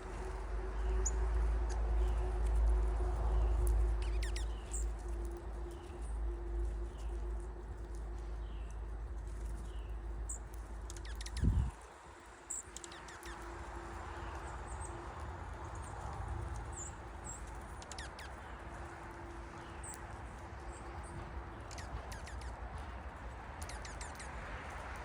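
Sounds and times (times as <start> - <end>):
low steady rumble: 0.0 - 12.4
small birds chirping: 0.0 - 25.0.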